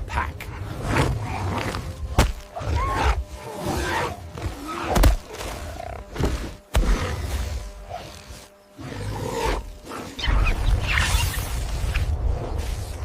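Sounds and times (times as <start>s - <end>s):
gliding animal cries: 2.5s - 6.1s.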